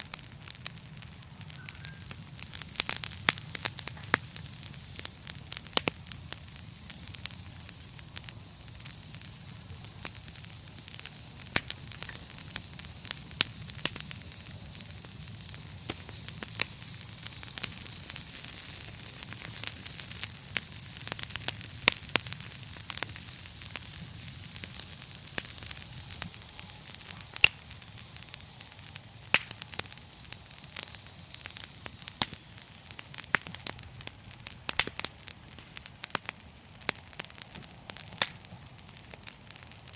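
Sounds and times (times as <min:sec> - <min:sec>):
flames hissing and rumbling: 0:00.0 - 0:39.9
sharp pops and snaps: 0:00.0 - 0:39.9
wood fire crackling: 0:00.0 - 0:39.9.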